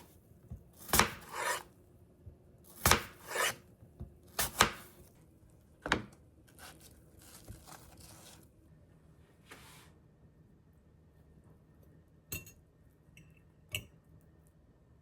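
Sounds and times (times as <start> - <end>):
knife cutting or scraping: 0.8 - 1.7, 2.7 - 3.6, 6.5 - 8.5.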